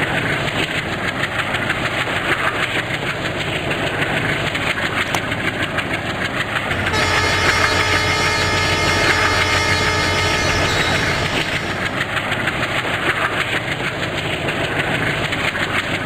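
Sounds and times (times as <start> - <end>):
train rumbling past: 6.4 - 12.8
steady whining tones: 6.7 - 12.1.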